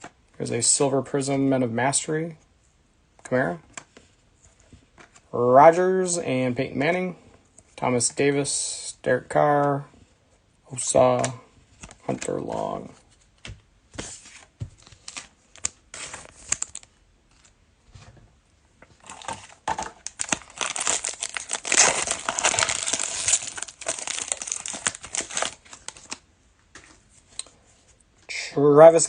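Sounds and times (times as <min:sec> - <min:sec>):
cards being handled: 0:11.2 - 0:17.6, 0:19.0 - 0:27.4
foil wrapper tearing and crinkling: 0:20.0 - 0:26.2.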